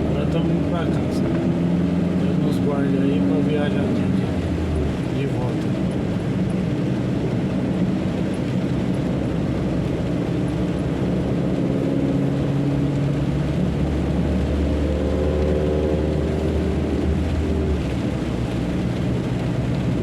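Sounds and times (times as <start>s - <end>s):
truck engine accelerating: 0.0s - 20.0s.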